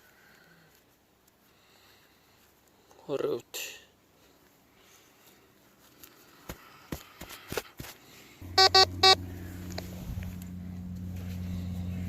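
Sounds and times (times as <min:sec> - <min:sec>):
steady low hum: 0:08.4 - 0:12.0
short electronic beeps: 0:08.5 - 0:09.2.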